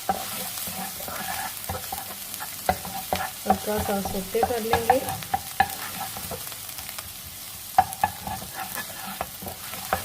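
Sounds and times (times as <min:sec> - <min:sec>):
garlic sizzling in a pan: 0:00.0 - 0:10.0
spoon knocking on a pan: 0:02.6 - 0:06.4, 0:07.8 - 0:08.6, 0:09.2 - 0:10.0.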